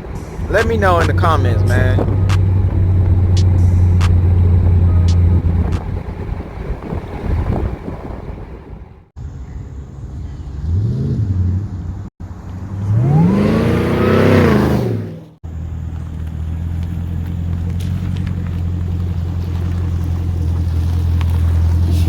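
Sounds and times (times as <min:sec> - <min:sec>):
low exhaust drone: 0:00.0 - 0:07.6
car exhaust revving: 0:00.0 - 0:08.5, 0:10.2 - 0:22.0.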